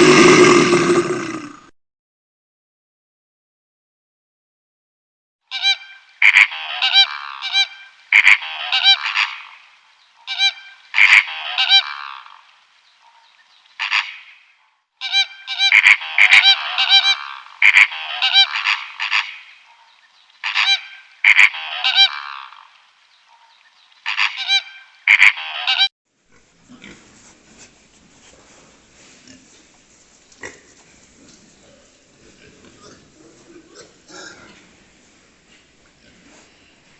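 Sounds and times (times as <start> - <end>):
bird honking: 5.5 - 9.6, 10.2 - 12.1, 15.0 - 22.5, 23.3 - 25.9.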